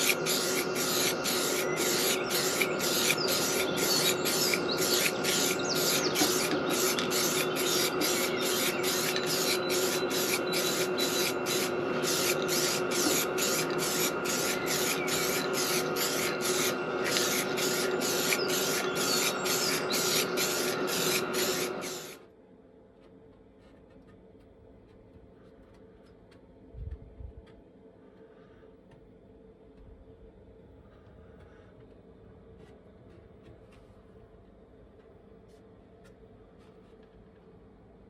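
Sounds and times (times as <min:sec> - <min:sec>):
aerosol spray can hissing: 0:00.0 - 0:22.2.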